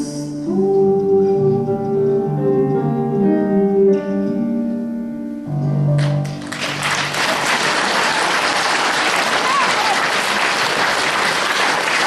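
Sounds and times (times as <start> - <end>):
instrumental accompaniment chords: 0.0 - 6.8
audience applause: 6.0 - 12.0.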